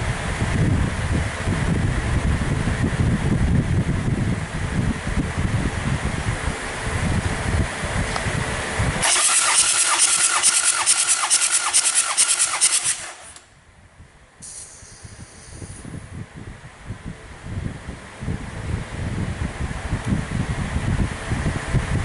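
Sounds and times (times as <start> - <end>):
diesel engine cranking on starter: 9.0 - 13.5
short hiss: 14.4 - 15.9.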